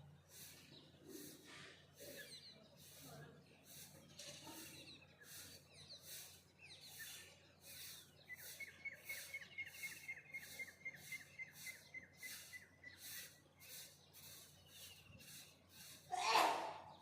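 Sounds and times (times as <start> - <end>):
faint birdsong: 0.0 - 17.0.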